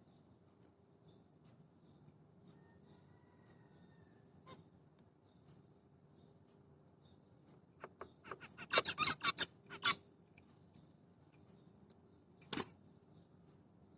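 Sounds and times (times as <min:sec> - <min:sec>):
finches chirping: 0:07.8 - 0:10.0
finch buzzy song: 0:07.9 - 0:10.0.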